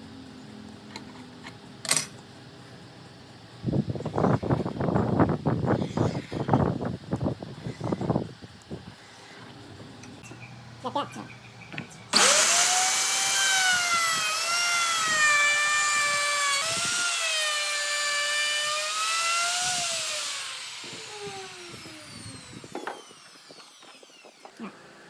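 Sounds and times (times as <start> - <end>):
power tool motor whining: 12.1 - 25.0.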